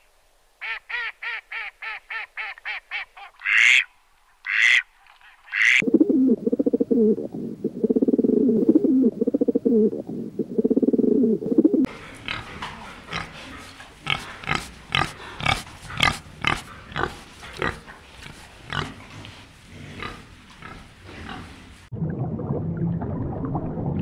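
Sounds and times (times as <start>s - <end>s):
wild boar calling: 11.8s - 21.5s.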